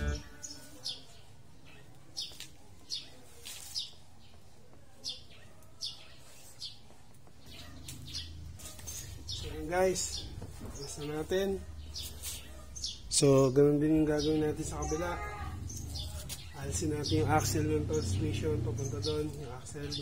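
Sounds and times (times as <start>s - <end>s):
bird chirping: 0.0s - 20.0s.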